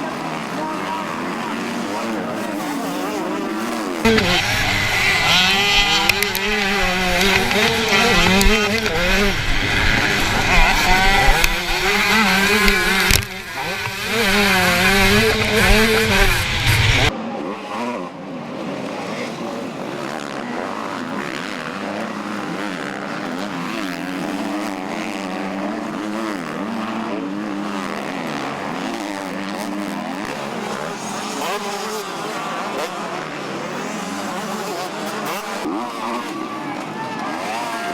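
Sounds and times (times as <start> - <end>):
distant engine: 0.0 - 37.9
motocross bike engines revving: 0.0 - 37.9.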